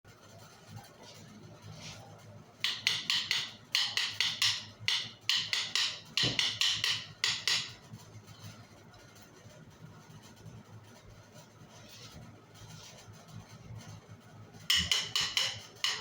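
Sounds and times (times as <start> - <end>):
wooden sticks clacking: 2.6 - 7.8, 14.7 - 16.0.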